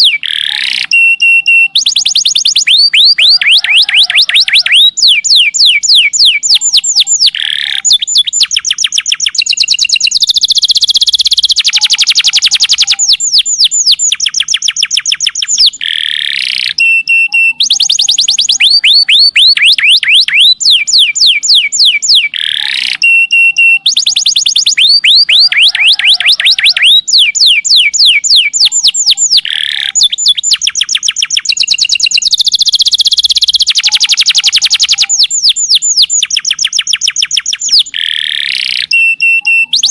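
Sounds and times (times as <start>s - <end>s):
canary singing trills: 0.0s - 39.9s
short held whistles: 0.1s - 3.2s, 16.4s - 25.3s, 37.4s - 39.9s.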